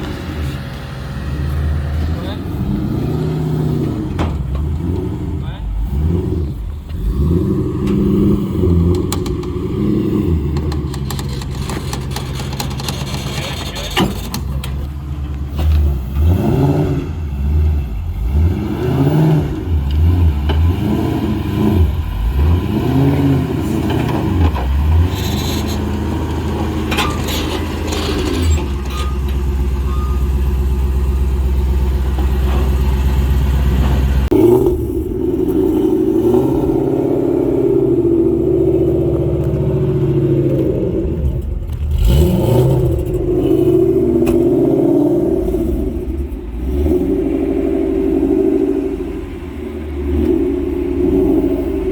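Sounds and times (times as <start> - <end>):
car engine revving and idling: 0.0 - 51.9.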